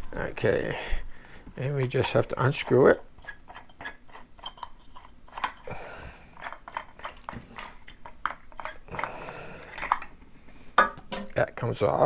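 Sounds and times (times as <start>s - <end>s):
plastic parts clicking and scraping: 1.6s - 5.7s, 6.3s - 10.2s.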